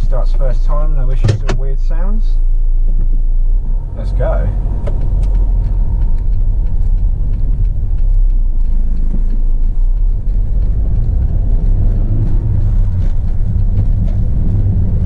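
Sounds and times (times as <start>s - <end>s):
diesel van engine rumbling: 0.0s - 15.0s.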